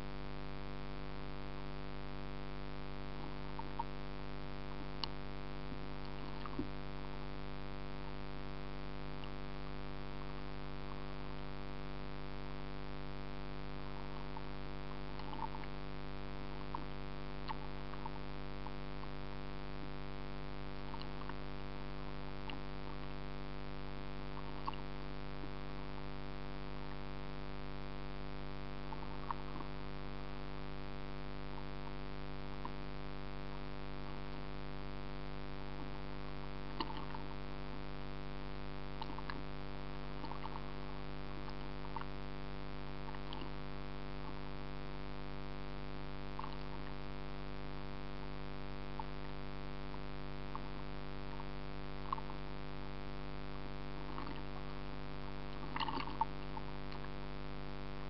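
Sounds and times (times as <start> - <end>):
electrical hum: 0.0 - 58.0
faint ticks: 3.1 - 4.0, 4.6 - 6.8, 9.1 - 9.4, 13.9 - 19.2, 20.8 - 25.0, 28.8 - 29.9, 36.6 - 37.9, 38.9 - 42.2, 43.0 - 44.5, 46.2 - 47.0, 49.9 - 52.5.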